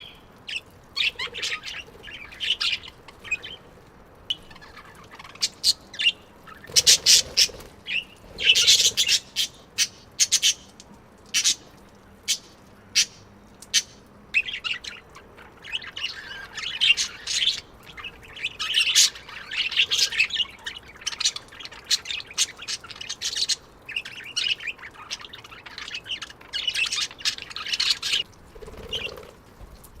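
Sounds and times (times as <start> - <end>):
budgerigars chirping: 15.7 - 29.3.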